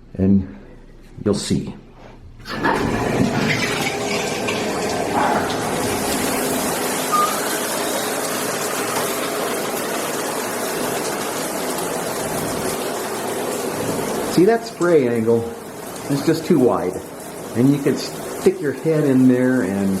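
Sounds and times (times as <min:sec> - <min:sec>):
shower head spraying water: 0:04.5 - 0:11.8.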